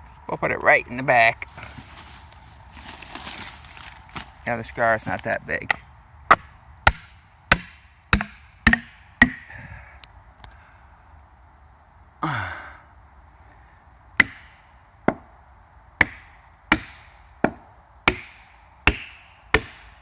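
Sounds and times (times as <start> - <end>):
hammer striking felling wedge: 5.2 - 9.4, 16.0 - 19.9.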